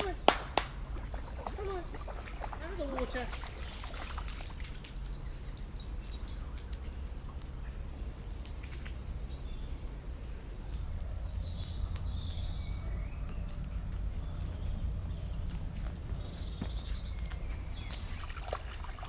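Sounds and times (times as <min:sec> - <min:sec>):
birds chirping and whistling: 0:02.0 - 0:04.3, 0:07.3 - 0:18.8
low rumble: 0:03.3 - 0:19.0.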